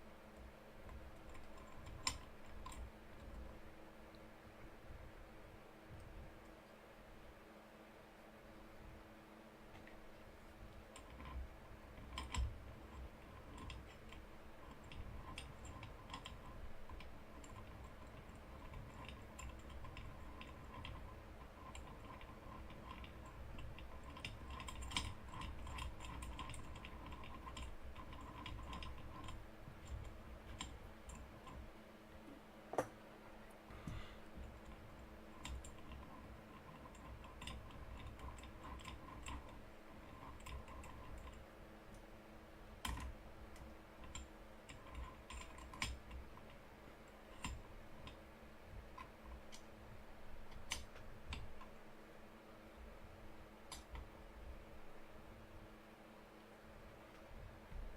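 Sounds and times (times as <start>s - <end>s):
steady low hum: 0.0s - 57.9s
small clicks and taps: 0.4s - 3.5s, 9.7s - 10.0s, 10.9s - 31.7s, 42.8s - 48.2s, 48.8s - 49.7s, 50.4s - 51.8s, 53.6s - 54.1s.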